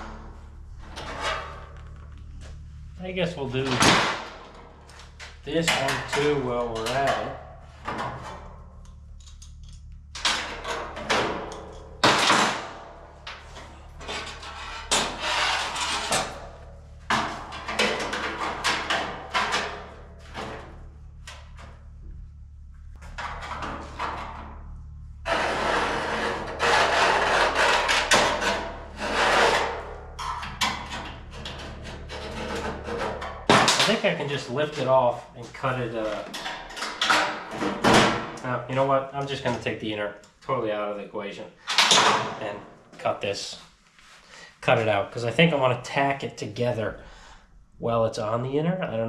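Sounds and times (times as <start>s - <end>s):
sheet metal scraping and knocking: 0.0s - 2.0s, 10.2s - 21.8s, 25.3s - 34.2s
steady low hum: 0.0s - 49.0s.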